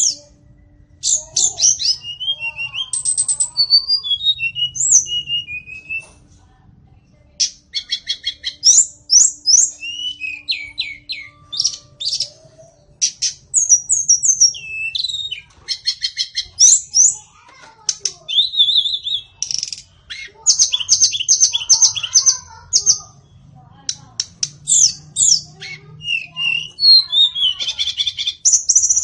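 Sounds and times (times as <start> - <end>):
bird singing whistled phrases: 0.0 - 6.2, 7.4 - 12.4, 13.0 - 17.3, 18.0 - 23.0, 24.2 - 29.0.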